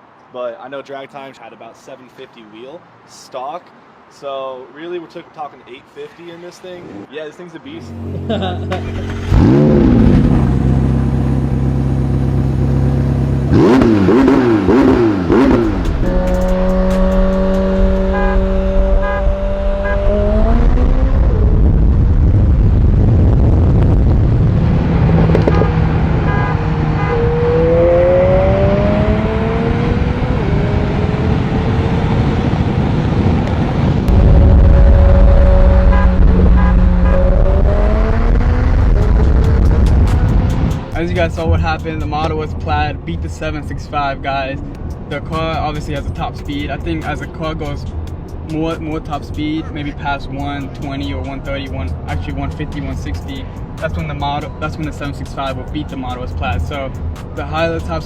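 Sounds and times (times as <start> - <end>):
car engine revving and accelerating: 7.8 - 42.3.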